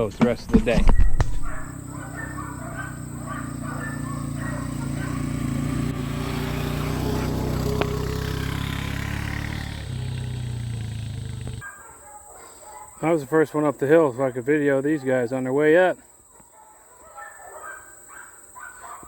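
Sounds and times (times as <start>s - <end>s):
engine running: 1.6s - 11.6s.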